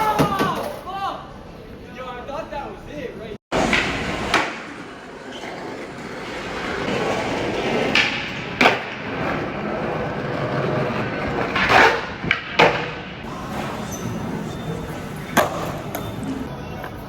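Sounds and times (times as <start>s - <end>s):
skateboard wheels rolling: 3.5s - 17.0s
skateboard knocking on ground: 3.6s - 4.8s, 5.8s - 13.0s.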